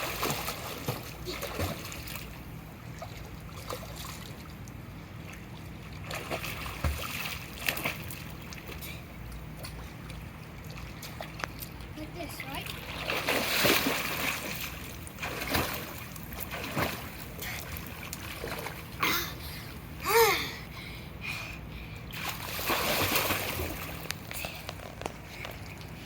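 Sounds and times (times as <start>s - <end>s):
pool water splashing: 0.0s - 20.3s, 22.0s - 26.0s.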